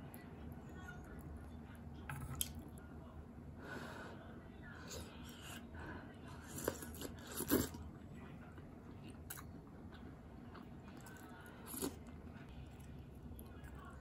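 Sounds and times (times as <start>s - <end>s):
person chewing food: 6.4s - 7.9s, 8.6s - 13.8s.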